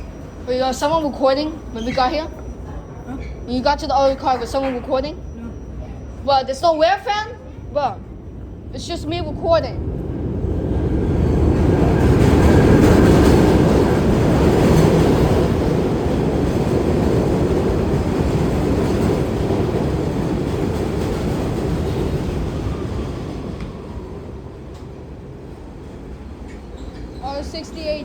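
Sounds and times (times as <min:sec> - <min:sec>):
subway train rumbling: 0:00.0 - 0:28.0.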